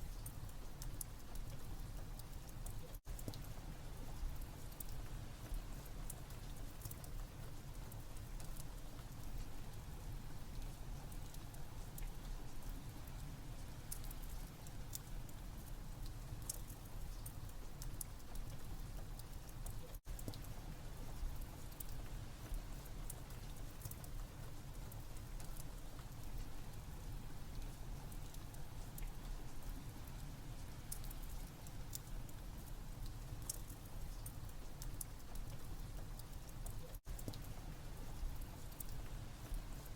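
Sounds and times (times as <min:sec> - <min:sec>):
rain: 0:00.0 - 0:39.9.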